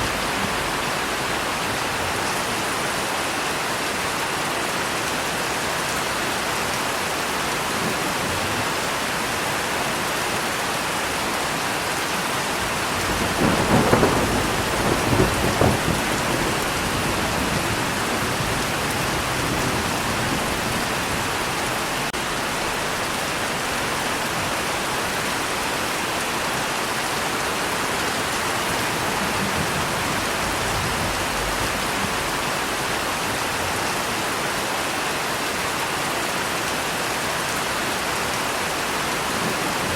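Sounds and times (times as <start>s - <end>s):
steady rain: 0.0s - 39.9s
thunder rumbling: 12.6s - 22.8s, 28.4s - 33.4s.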